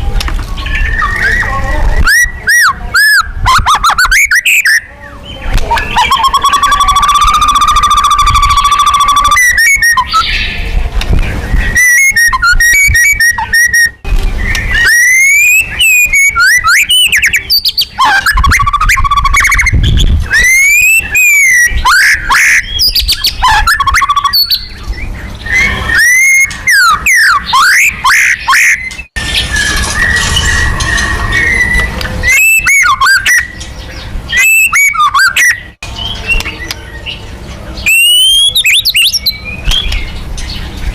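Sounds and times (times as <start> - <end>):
songbird singing varied whistles: 0.6 - 4.9, 5.7 - 10.6, 11.5 - 33.6, 34.3 - 37.2, 37.8 - 40.2.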